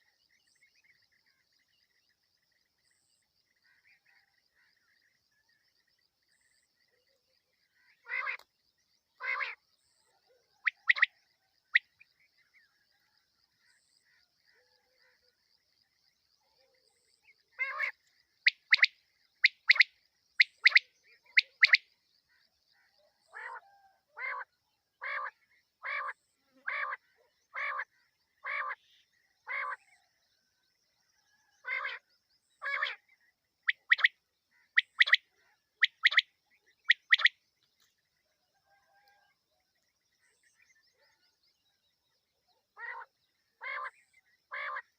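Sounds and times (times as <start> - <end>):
quail calling: 8.0 - 8.4, 9.2 - 9.6, 10.6 - 11.1, 17.6 - 21.8, 23.3 - 28.8, 29.5 - 29.8, 32.6 - 33.0, 33.7 - 34.1, 34.7 - 36.3, 36.9 - 37.3, 42.8 - 44.9.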